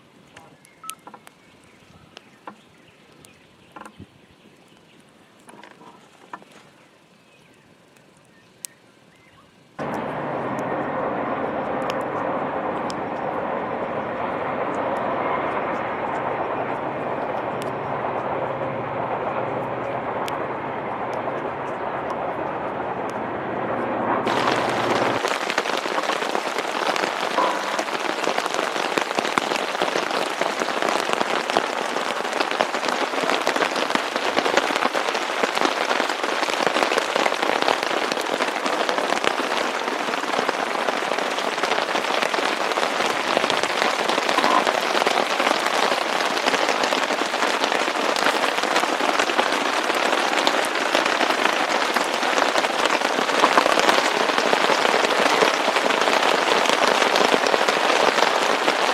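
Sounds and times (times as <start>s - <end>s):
heavy rain falling: 9.7s - 58.9s.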